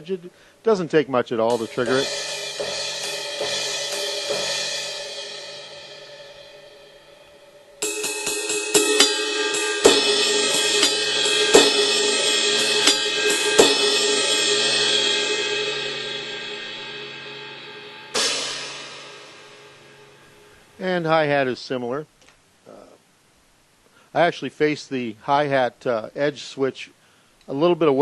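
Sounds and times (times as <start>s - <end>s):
electronic cymbal hits: 1.5s - 20.8s.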